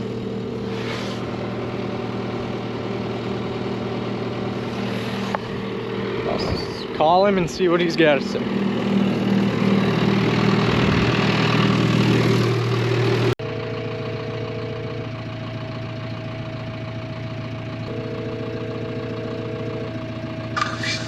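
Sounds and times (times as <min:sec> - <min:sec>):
engine running: 0:00.0 - 0:21.0
phone ringback tone: 0:13.5 - 0:15.3, 0:17.9 - 0:20.2.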